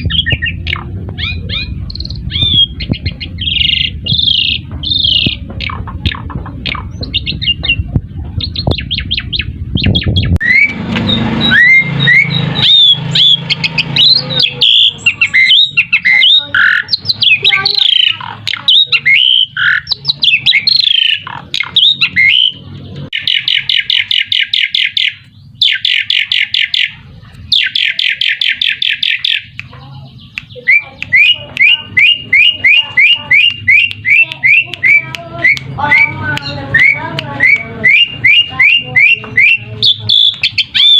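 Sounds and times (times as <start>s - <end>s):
buzzy bird trills: 0.0s - 40.9s
starling singing: 0.0s - 40.9s
rising bird whistles: 8.5s - 18.0s.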